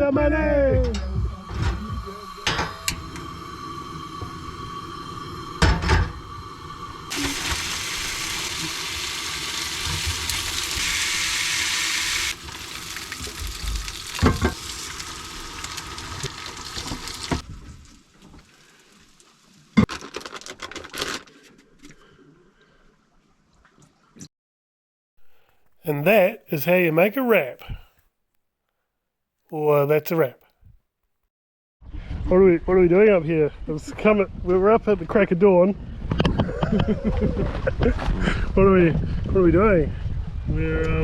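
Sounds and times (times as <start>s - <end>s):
food sizzling in a frying pan: 7.1s - 17.4s.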